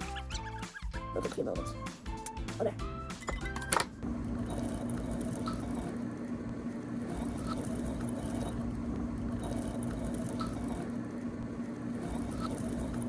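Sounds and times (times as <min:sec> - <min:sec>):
low hum: 0:04.0 - 0:13.0.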